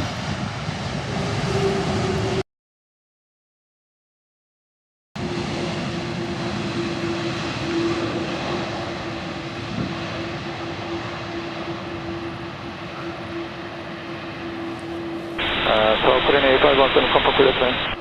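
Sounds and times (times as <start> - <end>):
jet airliner engines droning: 0.0 - 2.4, 5.2 - 18.0
steady hum: 15.4 - 18.0.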